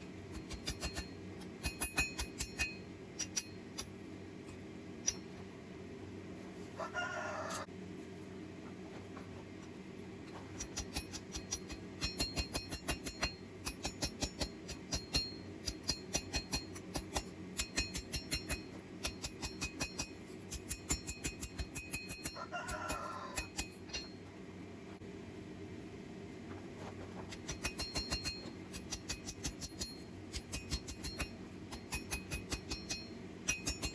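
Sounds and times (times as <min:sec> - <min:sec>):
hammer striking anvil: 0:00.3 - 0:03.9, 0:10.6 - 0:22.4, 0:27.4 - 0:33.9
rooster crowing: 0:06.8 - 0:07.7, 0:22.3 - 0:23.6.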